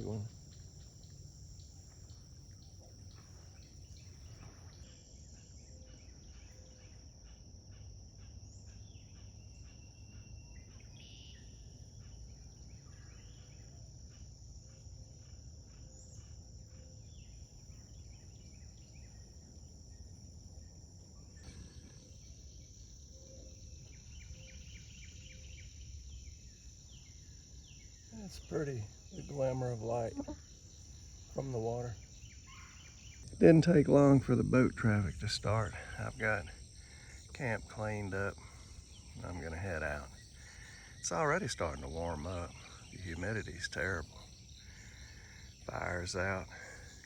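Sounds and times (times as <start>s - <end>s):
insect chorus: 0.0s - 47.0s
bird chirps: 21.2s - 26.3s, 31.2s - 47.0s.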